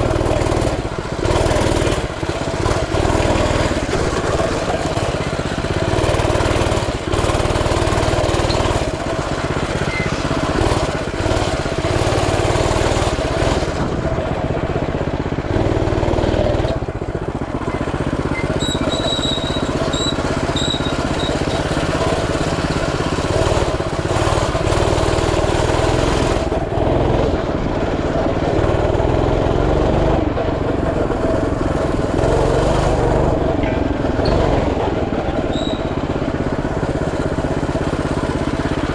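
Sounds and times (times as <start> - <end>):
mini bike engine running: 0.0 - 38.9.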